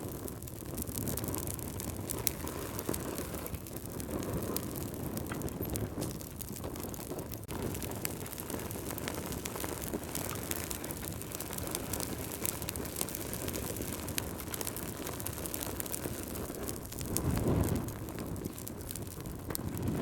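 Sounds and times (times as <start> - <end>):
logs crackling and popping: 0.0 - 20.0
low rumble of flame: 0.0 - 20.0.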